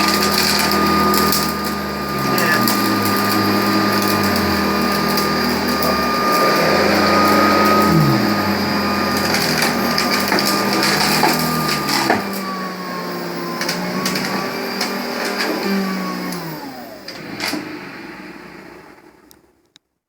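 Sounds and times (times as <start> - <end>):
bones rattling in vacuum: 0.0 - 12.5
vacuum cleaner running: 0.0 - 19.6.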